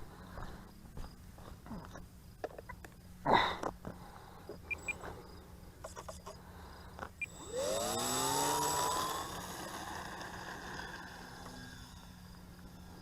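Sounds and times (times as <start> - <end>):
electric motor and propeller whine: 5.9 - 13.0.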